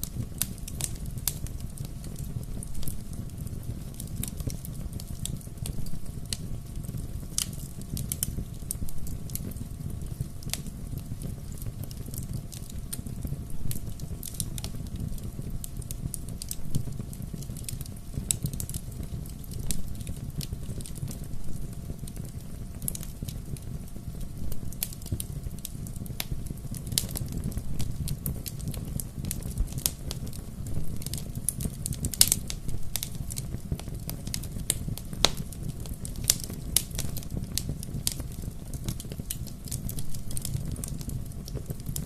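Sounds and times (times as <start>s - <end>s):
burning wood crackling and popping: 0.0s - 42.0s
low rumble of flames: 0.0s - 42.0s.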